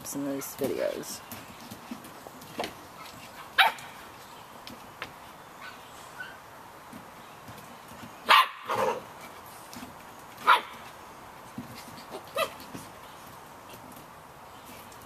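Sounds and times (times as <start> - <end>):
puppies yapping: 3.0 - 4.1, 8.2 - 9.1, 11.8 - 12.8
puppy barking: 3.6 - 3.9, 8.3 - 9.0, 10.4 - 10.8.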